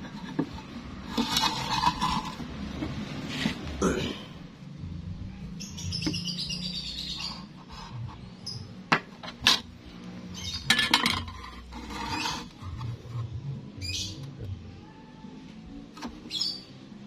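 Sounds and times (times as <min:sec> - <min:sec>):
small birds chirping: 0:05.4 - 0:07.6.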